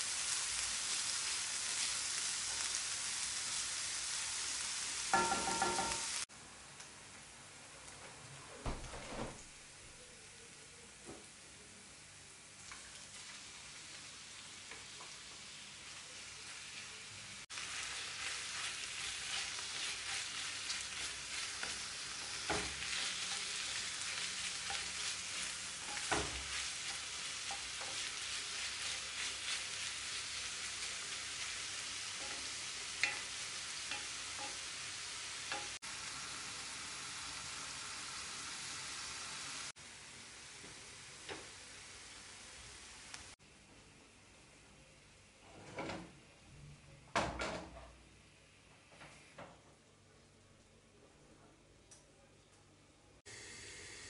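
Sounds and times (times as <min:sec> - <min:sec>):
meat sizzling in a skillet: 0:00.0 - 0:06.3, 0:12.4 - 0:43.4, 0:53.3 - 0:54.0
wooden spatula stirring: 0:17.8 - 0:30.2.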